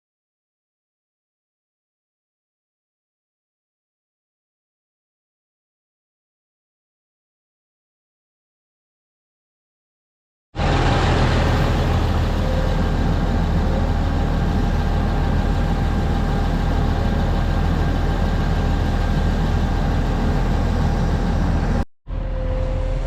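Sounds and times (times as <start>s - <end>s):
diesel engine running: 10.6s - 23.0s.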